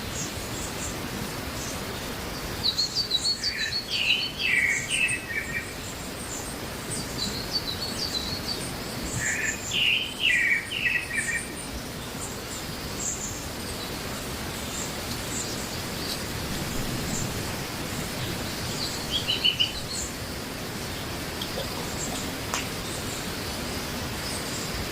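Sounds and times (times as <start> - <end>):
steady background hiss: 0.0 - 24.9
small birds chirping: 0.1 - 24.9.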